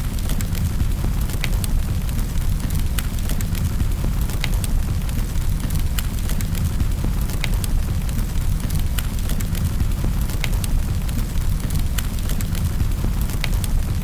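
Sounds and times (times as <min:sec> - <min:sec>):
burning wood crackling and popping: 0:00.0 - 0:14.0
fire low rumble: 0:00.0 - 0:14.0.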